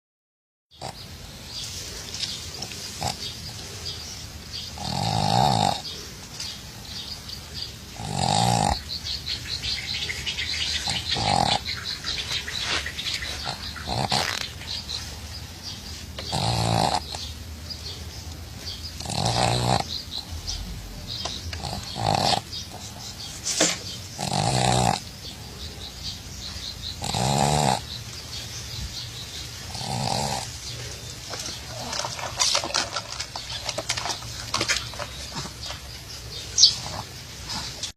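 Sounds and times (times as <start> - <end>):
dog snoring: 2.6 - 6.6, 7.9 - 17.4, 18.7 - 25.7, 26.9 - 28.0, 29.7 - 33.0, 36.5 - 37.9
dog breathing noisily: 36.6 - 37.9.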